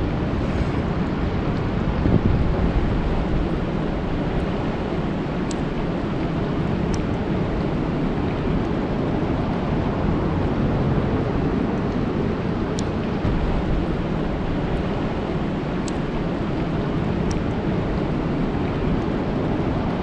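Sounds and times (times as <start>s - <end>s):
sharp ticks: 5.4s - 7.2s, 12.7s - 17.8s.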